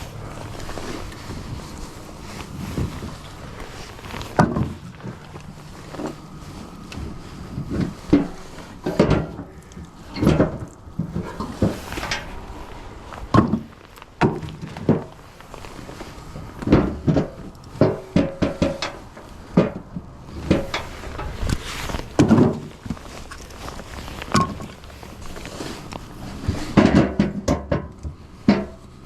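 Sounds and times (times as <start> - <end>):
firewood knocking and clattering: 0.0 - 29.0.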